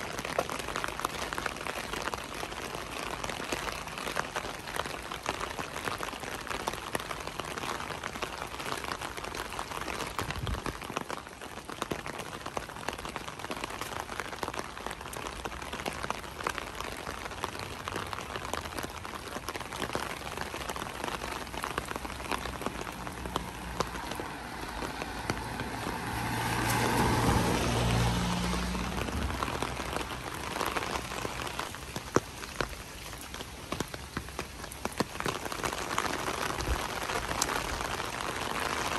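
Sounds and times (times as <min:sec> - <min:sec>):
steady rain pattering: 0:00.0 - 0:38.9
passing vehicle hum: 0:22.1 - 0:31.7.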